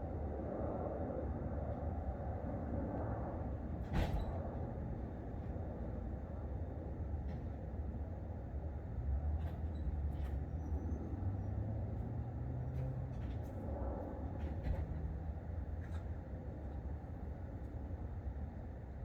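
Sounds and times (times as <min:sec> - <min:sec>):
low rumble of road traffic: 0:00.0 - 0:19.0
vehicle engine droning past: 0:10.5 - 0:15.4.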